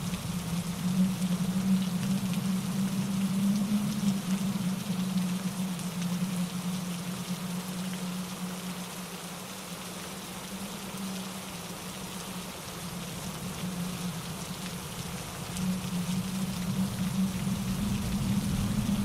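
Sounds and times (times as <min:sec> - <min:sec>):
rain falling through trees: 0:00.0 - 0:19.0
wind in leaves: 0:00.0 - 0:19.0
low rumble: 0:15.8 - 0:19.0.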